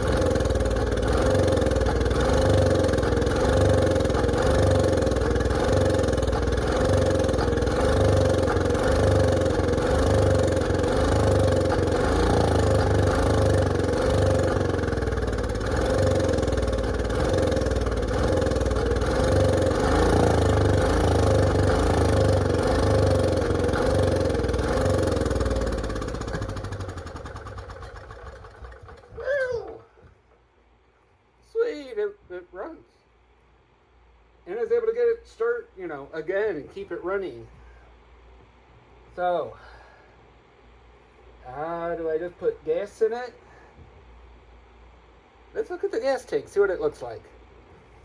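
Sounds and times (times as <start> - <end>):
generator engine running: 0.0 - 30.6.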